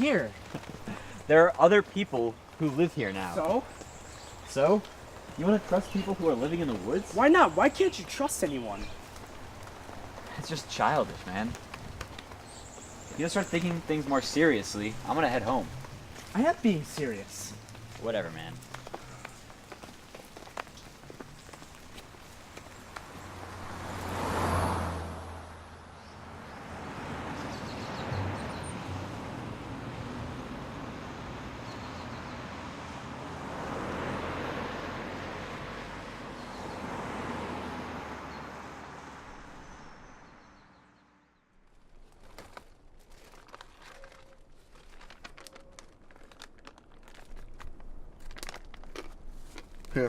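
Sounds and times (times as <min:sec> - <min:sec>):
faint clicks and rustles: 0:00.0 - 0:23.4, 0:41.7 - 0:50.0
road traffic passing: 0:00.0 - 0:41.7.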